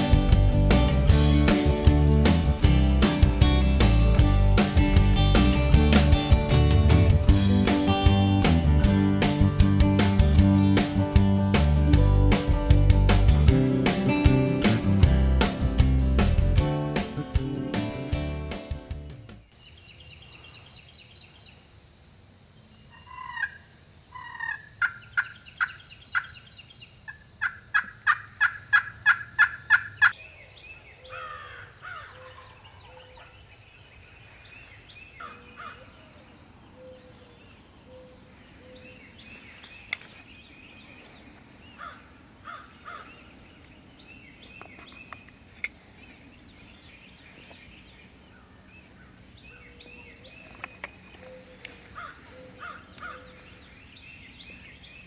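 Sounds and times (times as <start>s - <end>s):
small birds chirping faintly: 12.0s - 55.0s
turkey calling: 22.9s - 26.5s, 27.1s - 30.2s, 48.4s - 53.8s.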